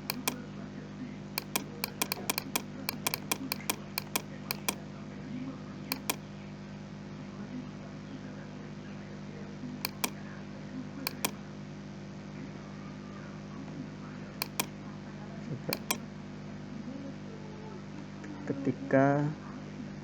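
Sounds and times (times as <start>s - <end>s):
computer fan hum: 0.0s - 0.4s, 1.4s - 4.8s, 5.9s - 6.2s, 9.9s - 10.2s, 11.1s - 11.4s, 14.4s - 14.7s, 15.8s - 16.0s
computer mouse clicks: 0.0s - 0.4s, 1.4s - 4.8s, 5.9s - 6.2s, 9.9s - 10.2s, 11.1s - 11.4s, 14.4s - 14.7s, 15.8s - 16.0s.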